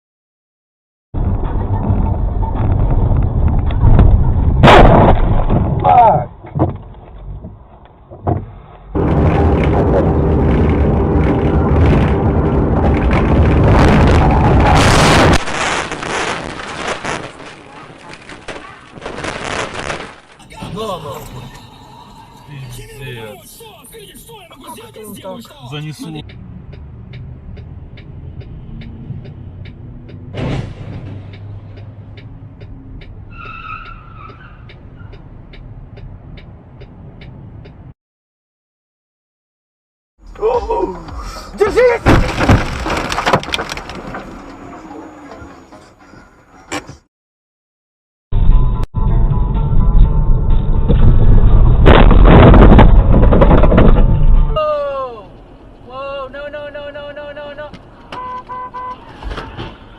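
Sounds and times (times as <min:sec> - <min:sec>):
vehicle engine hum: 0:01.2 - 0:04.6, 0:06.3 - 0:14.4, 0:20.5 - 0:37.9
road and wind noise: 0:01.2 - 0:38.0, 0:40.2 - 0:47.1, 0:48.4 - 0:59.9
turn signal clicking: 0:26.2 - 0:30.2, 0:33.8 - 0:37.9.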